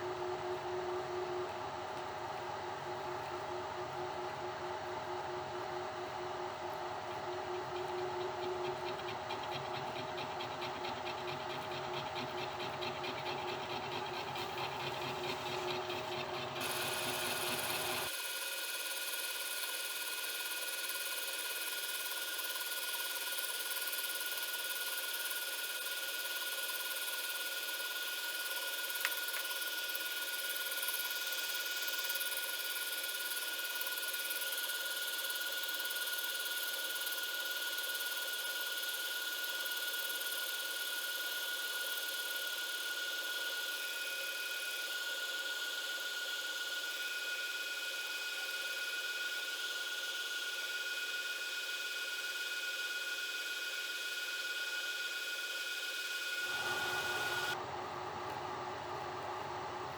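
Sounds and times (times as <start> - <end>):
milling machine spindle whine: 6.8 - 18.1, 56.4 - 57.8.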